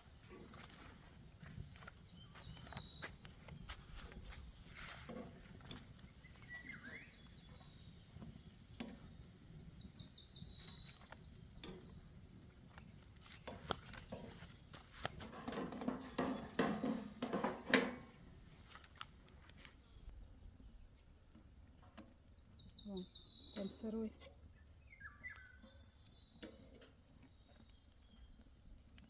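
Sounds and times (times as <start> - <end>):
utensil scraping in frying pan: 3.9 - 18.2.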